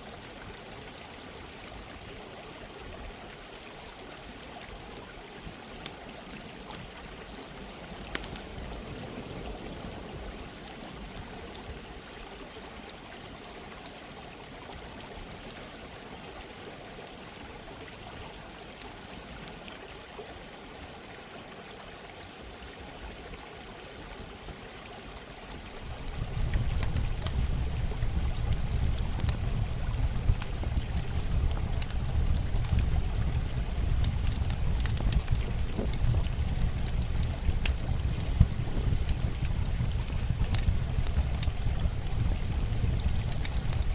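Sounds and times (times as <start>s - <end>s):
running water rushing: 0.0s - 43.9s
campfire crackling: 5.8s - 12.3s, 25.5s - 43.9s.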